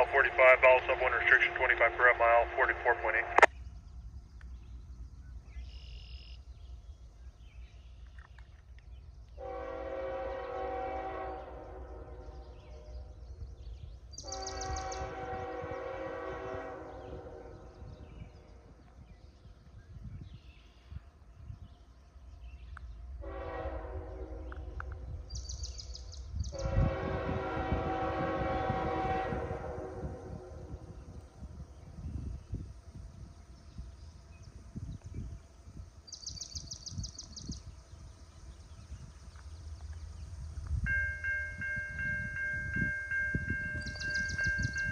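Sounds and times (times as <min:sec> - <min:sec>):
locomotive rumble: 0:00.0 - 0:05.7
locomotive air horn blasts: 0:09.4 - 0:13.0, 0:14.2 - 0:17.9, 0:23.2 - 0:25.2, 0:26.5 - 0:30.9.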